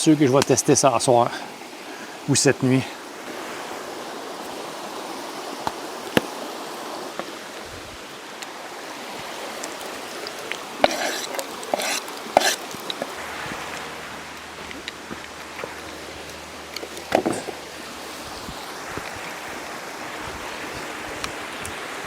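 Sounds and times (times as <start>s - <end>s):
campfire hissing: 0.0s - 22.0s
clattering and scraping: 10.8s - 17.7s.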